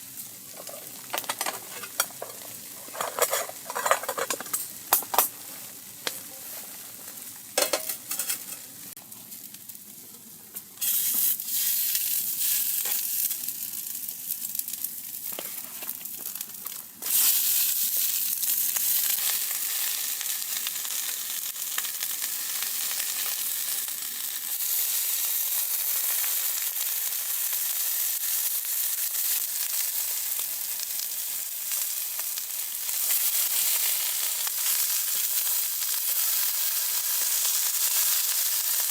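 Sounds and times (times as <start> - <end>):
food sizzling in a pan: 0.0 - 38.9.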